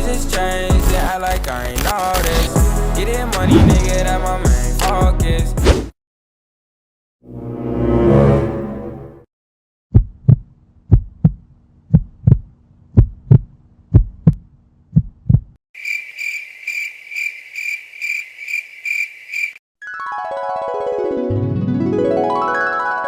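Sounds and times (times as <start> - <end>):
heartbeat thumps: 3.4 - 4.6, 9.9 - 15.6
cricket chirping: 15.8 - 19.6.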